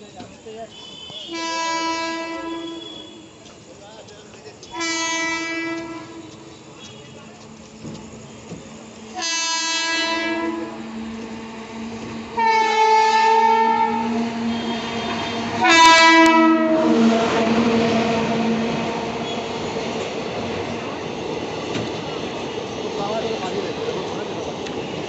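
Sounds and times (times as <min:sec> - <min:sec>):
train wheels rushing on rails: 0:00.0 - 0:25.0
train horn blasts: 0:00.7 - 0:03.4, 0:04.7 - 0:07.2, 0:09.1 - 0:19.5.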